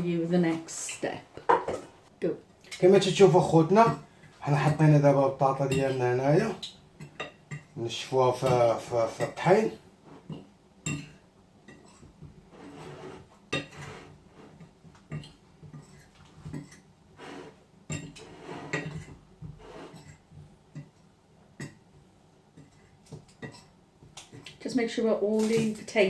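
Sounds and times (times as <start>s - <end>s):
dishes and utensils clinking: 2.6s - 9.6s, 10.2s - 21.0s, 22.5s - 24.5s.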